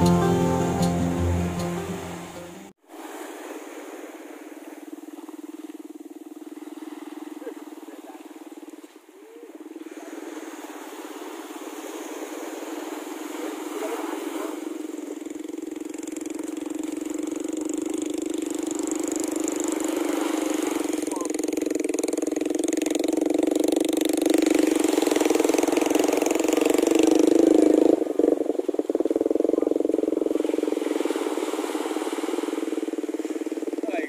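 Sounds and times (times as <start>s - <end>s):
guitar music: 0.0s - 2.7s
motor engine running: 12.3s - 34.0s.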